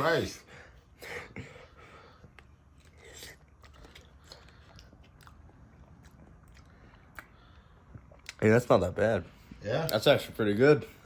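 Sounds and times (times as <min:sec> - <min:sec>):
person chewing food: 0:02.1 - 0:08.4.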